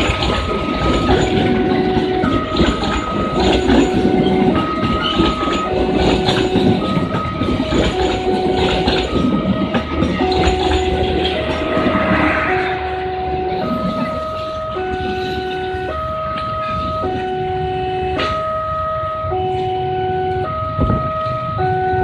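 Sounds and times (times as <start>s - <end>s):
train rumbling and clattering: 0.0s - 22.0s
two-tone electronic warning signal: 0.0s - 22.0s.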